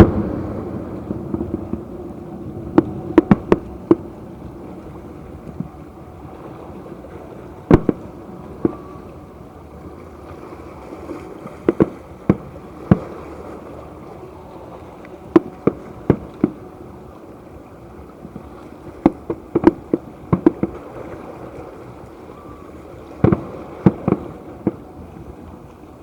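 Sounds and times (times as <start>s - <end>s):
fireworks exploding: 0.0s - 4.0s, 7.7s - 8.8s, 23.2s - 24.9s
steady background hiss: 0.0s - 26.0s.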